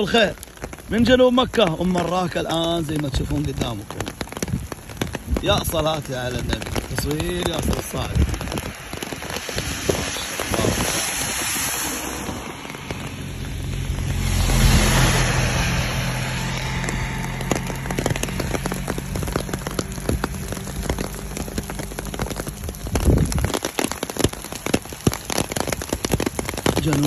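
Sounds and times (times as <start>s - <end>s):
rain falling: 0.0s - 27.0s
raindrops tapping near microphone: 0.0s - 27.0s
vehicle engine humming: 10.4s - 23.4s.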